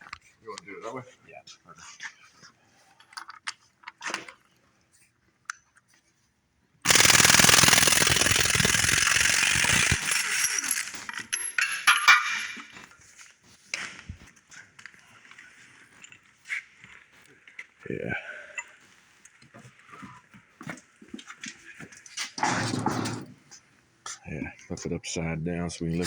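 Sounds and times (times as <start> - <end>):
impact wrench hammering: 6.9 - 12.5
metal clicks and clanks: 9.5 - 12.7.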